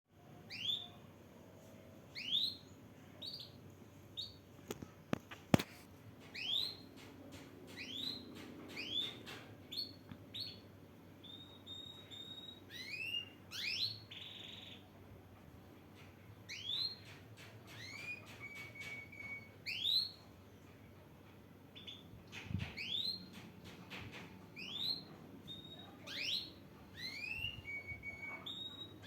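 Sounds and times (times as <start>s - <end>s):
canary whistling: 2.1s - 2.6s, 11.2s - 14.8s, 17.7s - 20.2s, 24.6s - 29.0s.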